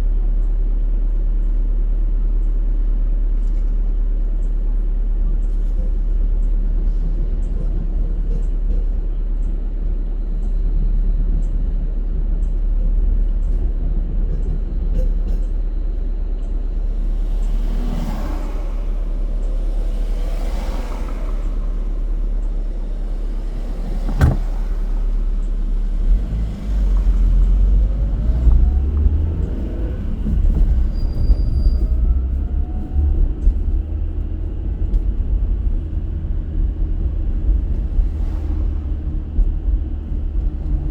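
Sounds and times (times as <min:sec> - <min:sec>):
road and engine rumble: 0:00.0 - 0:40.9
vehicle passing: 0:16.9 - 0:30.9.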